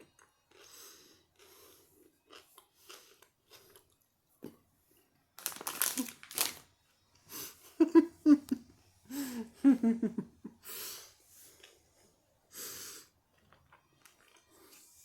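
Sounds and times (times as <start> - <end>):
person chewing with wet crunching: 0.0 - 6.5, 11.5 - 12.1, 13.1 - 15.0.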